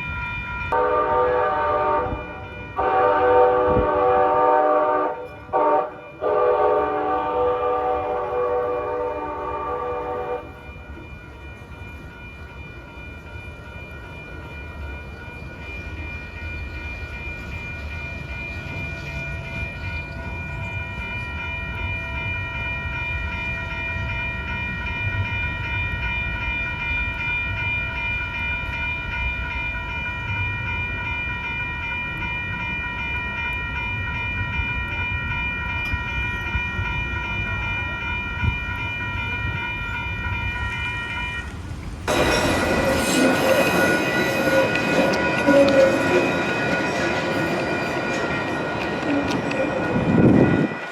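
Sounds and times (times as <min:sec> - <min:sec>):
crossing warning bell ringing: 0:00.0 - 0:50.9
train rumbling past: 0:00.6 - 0:23.4, 0:34.1 - 0:50.9.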